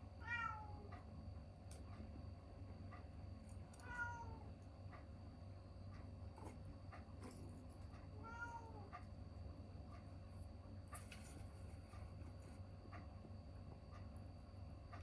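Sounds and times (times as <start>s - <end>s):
cat meowing: 0.2s - 0.8s, 3.8s - 4.4s, 8.2s - 8.9s.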